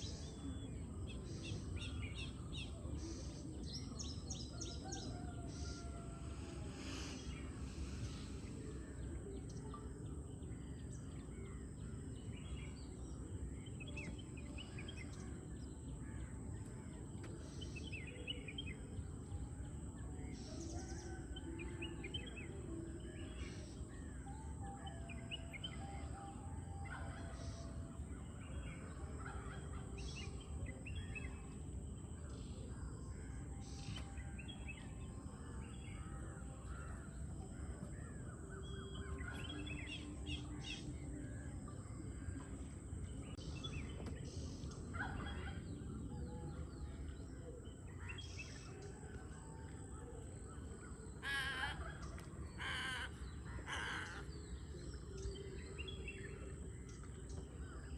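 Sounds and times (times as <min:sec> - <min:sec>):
constant high-pitched tone: 0:00.0 - 0:57.9
birds chirping and calling: 0:33.2 - 0:57.9.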